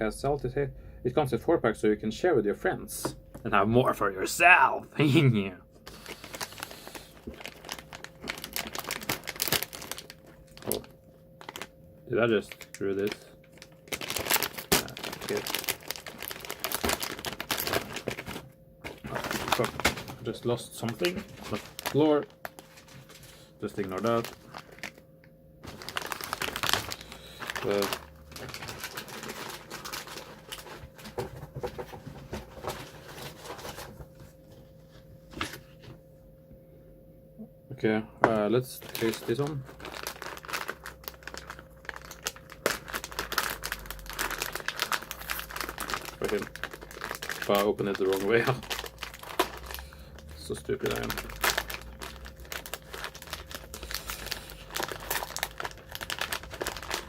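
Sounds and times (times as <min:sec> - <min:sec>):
plastic wrapper crinkling: 0:05.8 - 0:34.2, 0:38.7 - 0:57.0
wrapper being torn open: 0:05.9 - 0:11.7, 0:12.4 - 0:25.0, 0:25.6 - 0:31.1, 0:38.8 - 0:57.0.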